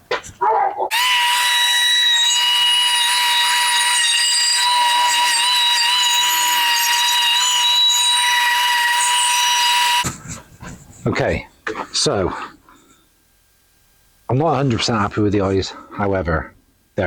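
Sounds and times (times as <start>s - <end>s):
power carving tool whining: 0.9s - 10.1s.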